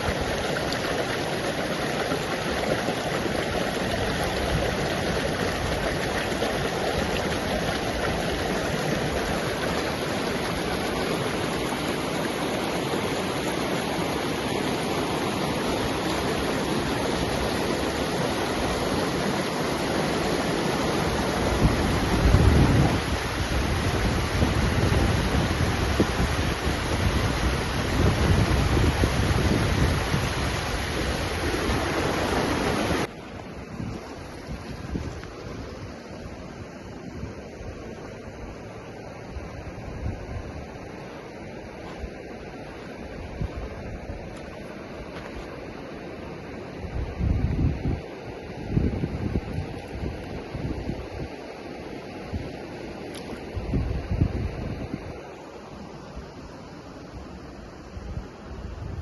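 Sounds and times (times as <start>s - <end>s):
rushing water: 0.0s - 59.0s
wind buffeting microphone: 21.1s - 36.0s, 46.8s - 51.4s, 53.4s - 55.3s.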